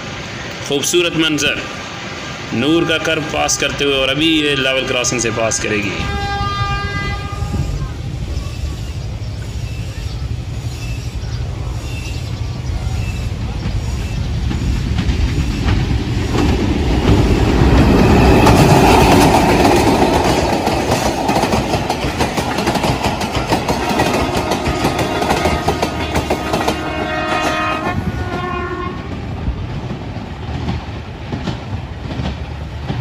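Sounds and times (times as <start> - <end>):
train rumbling past: 0.0 - 33.0
train horn: 2.6 - 8.0, 23.7 - 29.2
wheels clacking over rail joints: 9.0 - 33.0.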